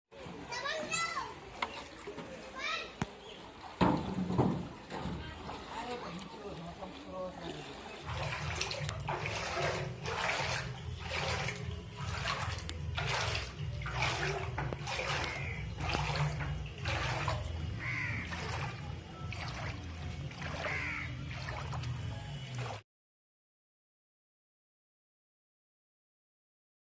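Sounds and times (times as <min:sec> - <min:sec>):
floodwater flowing and splashing: 0:00.2 - 0:22.8.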